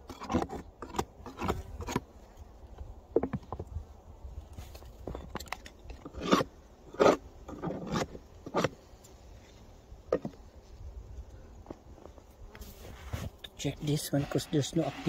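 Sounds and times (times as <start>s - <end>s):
snow crunching and scraping: 12.6s - 15.0s.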